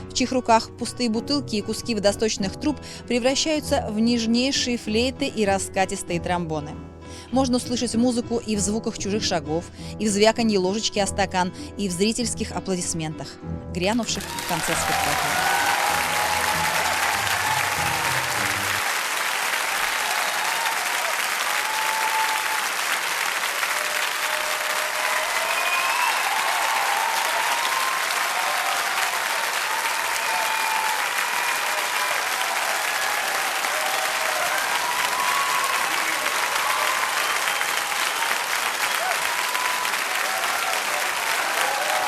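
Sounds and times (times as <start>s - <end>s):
audience applauding: 14.2s - 42.0s.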